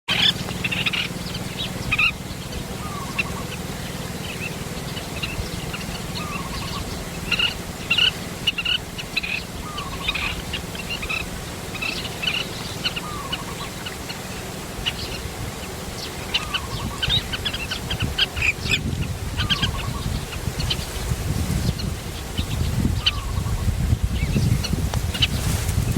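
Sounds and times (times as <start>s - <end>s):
high bird chirps: 0.1s - 20.9s
lower falling bird call: 0.1s - 25.9s
steady low rumble: 0.1s - 25.9s.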